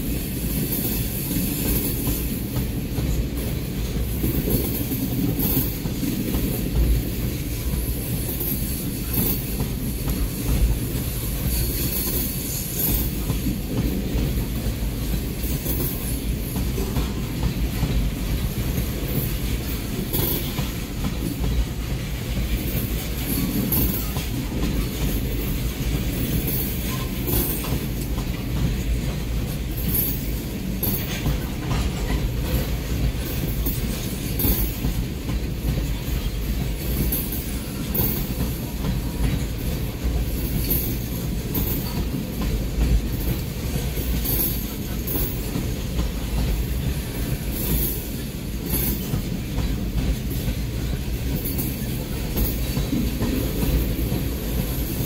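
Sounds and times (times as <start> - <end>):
train wheels rumbling on rail: 0.0 - 55.0
sharp clacks and squeaks: 25.9 - 28.8.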